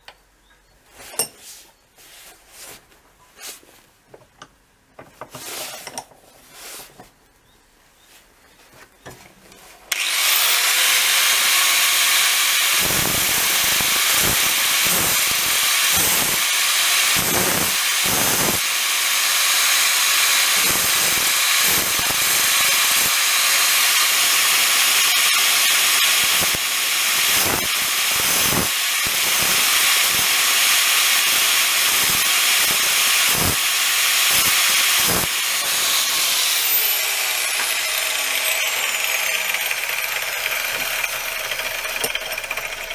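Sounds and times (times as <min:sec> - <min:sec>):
electric grinder grinding: 0:09.9 - 0:42.9.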